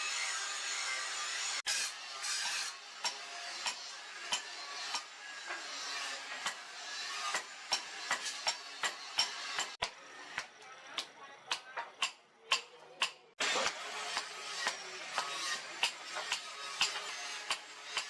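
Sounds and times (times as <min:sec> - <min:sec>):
hand tool scraping metal: 0:01.7 - 0:09.9, 0:13.4 - 0:18.0.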